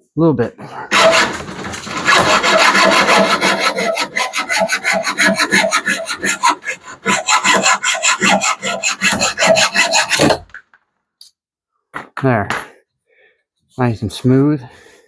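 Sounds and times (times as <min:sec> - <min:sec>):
hacksaw cutting: 0:00.9 - 0:10.6.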